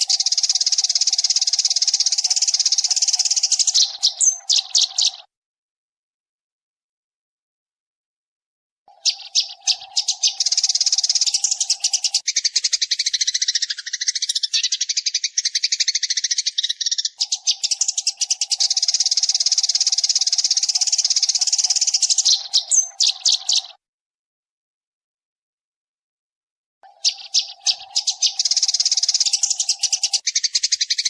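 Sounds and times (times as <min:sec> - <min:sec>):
sparrows chattering: 0:00.0 - 0:05.3, 0:08.9 - 0:23.8, 0:26.8 - 0:31.0.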